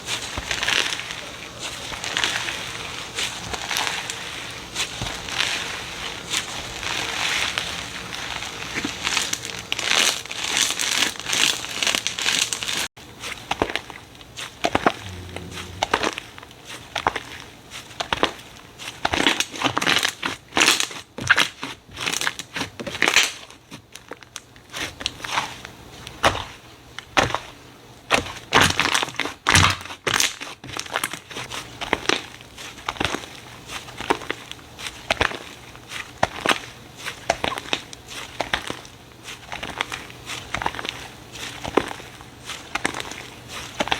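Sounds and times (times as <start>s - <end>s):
slime crackling and popping: 1.9s - 12.9s.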